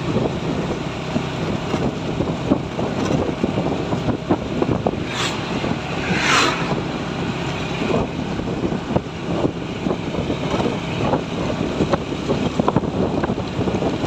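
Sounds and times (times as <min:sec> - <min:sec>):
truck engine and road rumble: 0:00.0 - 0:14.0
hissing surge: 0:04.8 - 0:08.2.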